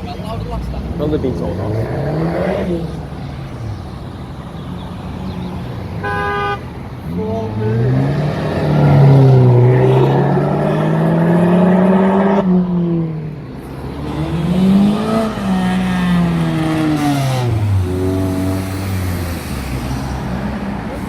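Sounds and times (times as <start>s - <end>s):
car engine accelerating: 7.2s - 21.0s.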